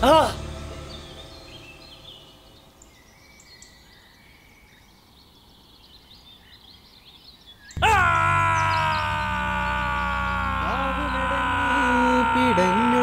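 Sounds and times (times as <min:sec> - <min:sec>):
music: 0:00.0 - 0:03.1, 0:07.8 - 0:13.0
high bird chirps: 0:00.7 - 0:12.2.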